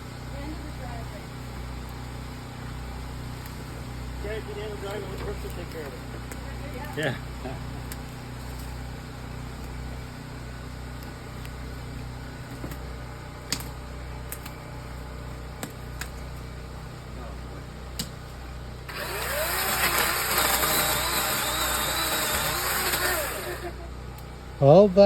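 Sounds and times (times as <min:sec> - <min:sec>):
engine idling and revving: 0:18.9 - 0:23.9.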